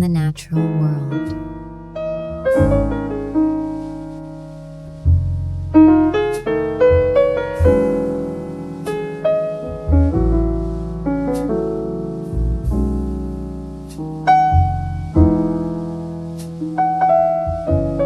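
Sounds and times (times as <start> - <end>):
solo piano music: 0.6 - 5.0, 5.6 - 18.0.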